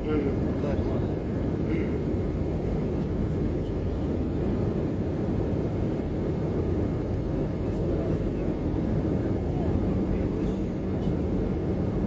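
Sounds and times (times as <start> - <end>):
airliner cabin noise: 0.0 - 12.0.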